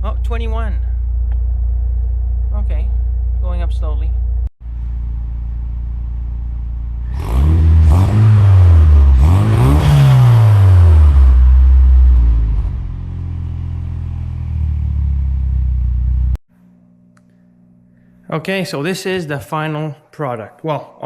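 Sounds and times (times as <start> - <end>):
car engine revving and idling: 0.0 - 16.4.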